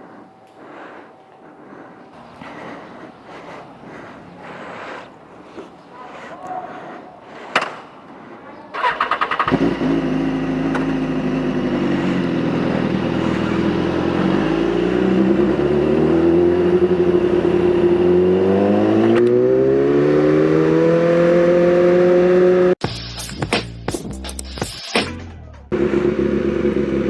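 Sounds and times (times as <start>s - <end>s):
motorcycle engine idling: 8.5s - 18.4s, 25.7s - 27.0s
motorcycle starter clatter: 8.7s - 13.8s
motorcycle pulling away: 8.7s - 22.8s, 25.7s - 27.0s.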